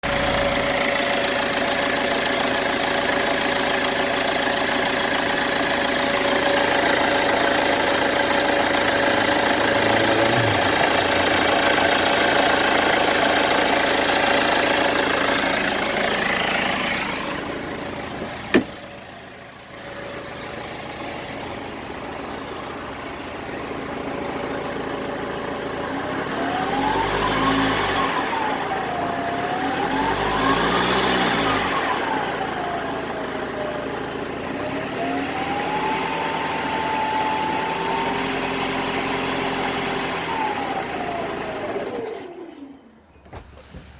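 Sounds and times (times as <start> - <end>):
diesel engine running: 0.0 - 43.9
engine revving: 6.2 - 18.8, 23.6 - 42.8.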